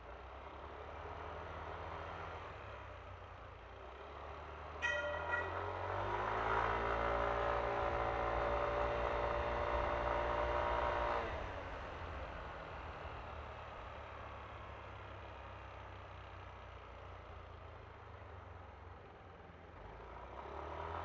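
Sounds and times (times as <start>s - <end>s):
road rumble: 0.0s - 21.0s
wind: 0.0s - 21.0s
horn beeps: 4.8s - 5.6s.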